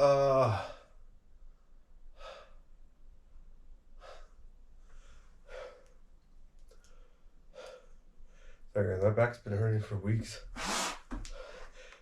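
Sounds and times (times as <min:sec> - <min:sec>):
man breathing hard: 0:02.1 - 0:02.7, 0:04.0 - 0:06.0, 0:06.8 - 0:08.7, 0:10.6 - 0:12.0.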